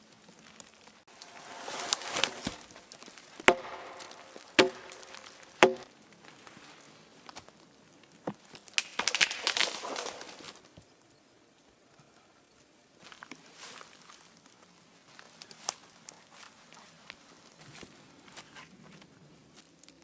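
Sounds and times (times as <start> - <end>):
wood cracking and splintering: 0.0 - 10.8
axe strikes chopping wood: 3.4 - 5.9.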